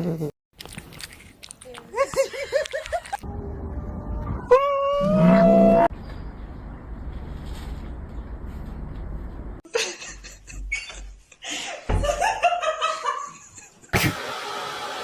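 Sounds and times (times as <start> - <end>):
person laughing in bursts: 2.0 - 3.2, 9.7 - 14.2.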